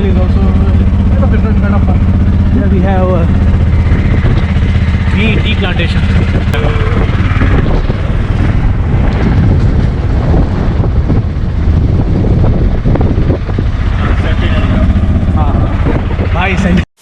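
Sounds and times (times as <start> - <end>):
wind buffeting microphone: 0.0 - 16.8
auto-rickshaw engine rumbling: 0.0 - 17.0.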